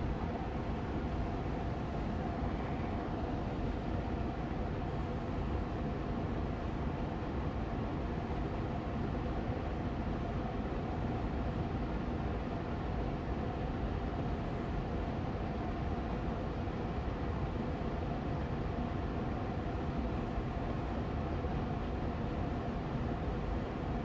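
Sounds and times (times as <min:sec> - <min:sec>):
air purifier fan running: 0:00.0 - 0:24.0.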